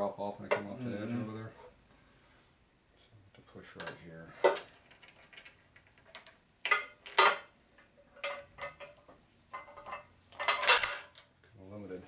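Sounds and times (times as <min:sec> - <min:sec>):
metal parts clicking and clinking: 0:03.8 - 0:07.4, 0:09.8 - 0:11.3.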